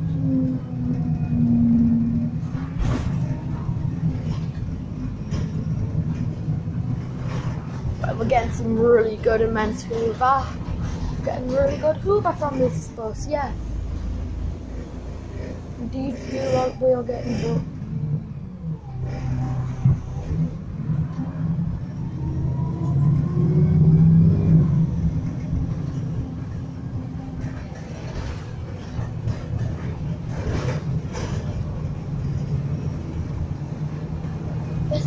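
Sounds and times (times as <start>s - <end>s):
bus engine whining under load: 0.0s - 35.0s.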